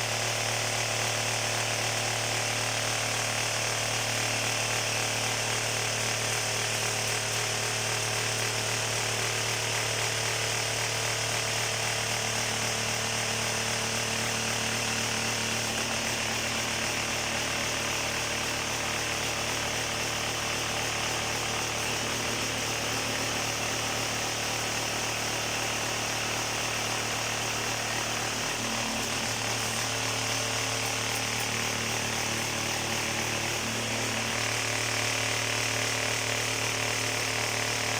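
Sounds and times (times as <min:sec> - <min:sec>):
vibrating table humming: 0:18.3 - 0:34.9.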